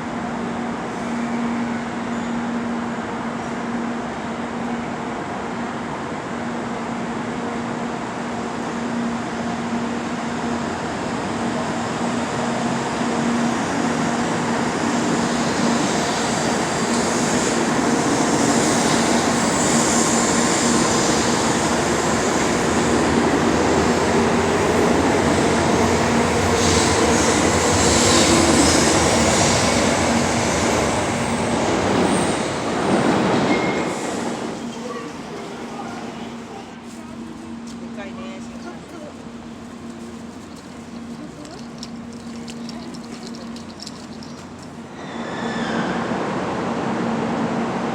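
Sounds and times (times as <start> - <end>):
train running with a hum: 0.0 - 47.9
high wheel squeal: 45.0 - 46.0.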